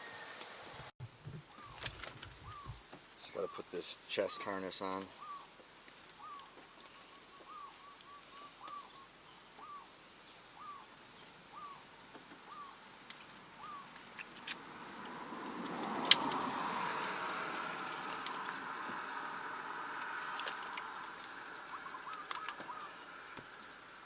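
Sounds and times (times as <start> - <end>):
rustling: 0.0 - 3.1
bird calling: 1.2 - 14.6, 16.2 - 23.8.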